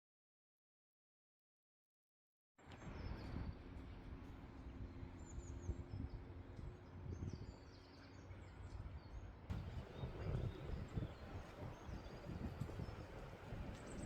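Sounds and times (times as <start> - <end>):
small birds chirping: 4.6 - 14.0.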